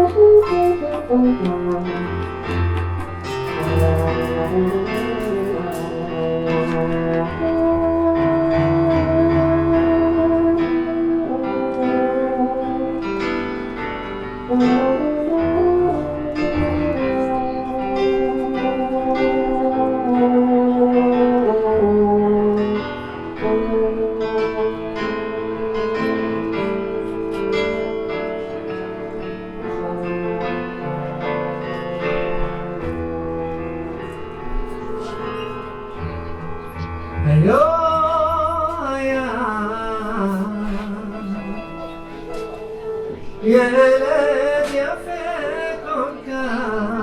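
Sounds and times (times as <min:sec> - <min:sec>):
french horn: 0:00.0 - 0:35.4
piano chords: 0:00.0 - 0:47.0.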